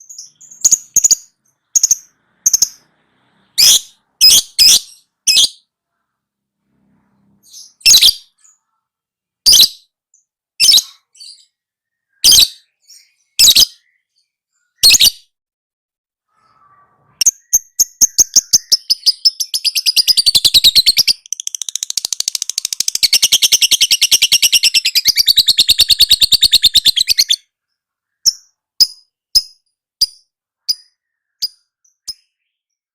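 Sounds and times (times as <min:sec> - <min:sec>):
lovebird chattering trill: 0:00.0 - 0:02.9, 0:03.6 - 0:05.6, 0:12.2 - 0:13.9, 0:17.2 - 0:27.4
lovebird sharp chirps: 0:00.0 - 0:05.7, 0:07.4 - 0:08.7, 0:09.4 - 0:11.5, 0:12.1 - 0:15.3, 0:16.3 - 0:27.5, 0:28.1 - 0:32.8.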